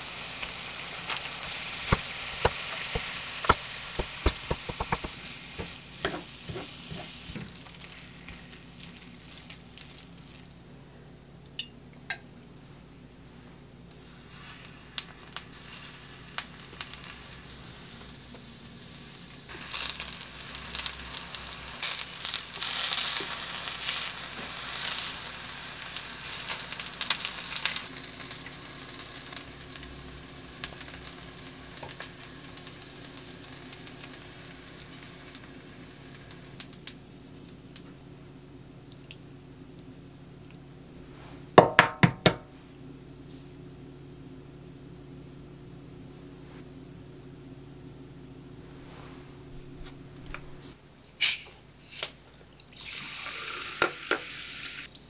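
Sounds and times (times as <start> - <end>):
eggplant sizzling in oil: 0.0 - 10.6, 13.9 - 37.8, 51.2 - 55.0
sharp knocks: 2.4 - 5.2.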